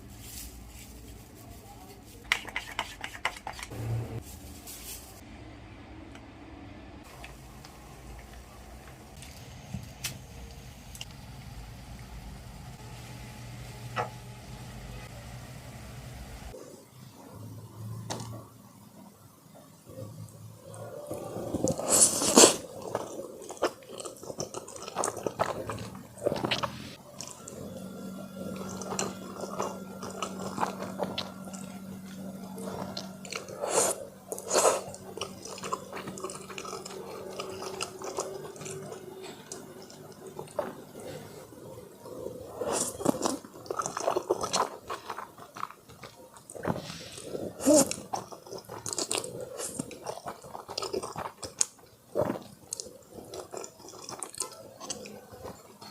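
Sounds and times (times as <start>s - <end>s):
person chewing and crunching food: 20.6s - 55.9s.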